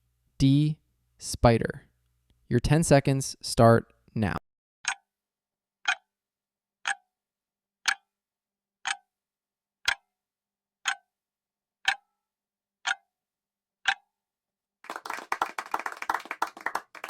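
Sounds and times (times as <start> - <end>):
clock ticking: 4.8 - 5.1, 5.8 - 6.1, 6.8 - 7.1, 7.8 - 8.1, 8.8 - 9.1, 9.8 - 10.1, 10.8 - 11.1, 11.8 - 12.1, 12.8 - 13.0, 13.8 - 14.1.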